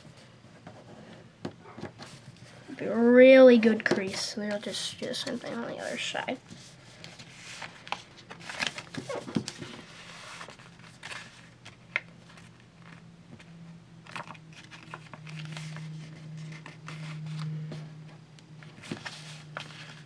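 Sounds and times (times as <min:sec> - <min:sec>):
paper crinkling and rustling: 0:03.6 - 0:17.9, 0:18.6 - 0:20.0
low hum: 0:12.4 - 0:20.0.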